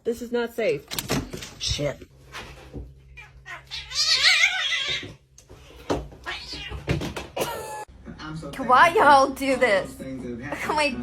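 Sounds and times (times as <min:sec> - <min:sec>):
cat yowling: 0:03.2 - 0:05.2.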